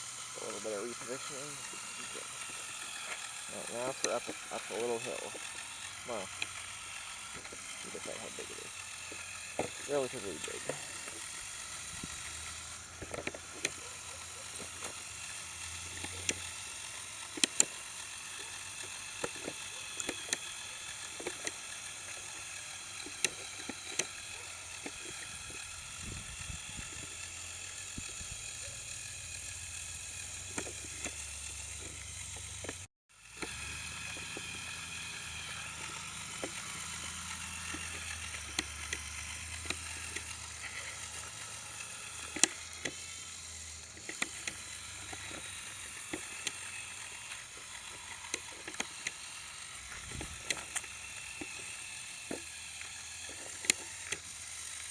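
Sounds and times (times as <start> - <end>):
clicks and ticks from wheels: 0.0 - 54.9
small electric motors whirring: 0.0 - 54.9.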